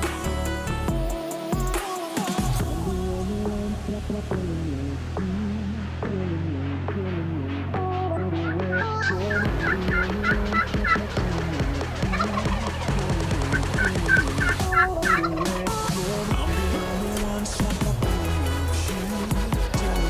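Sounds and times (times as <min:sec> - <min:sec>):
background music: 0:00.0 - 0:20.0
turkey gobbling: 0:09.0 - 0:15.9.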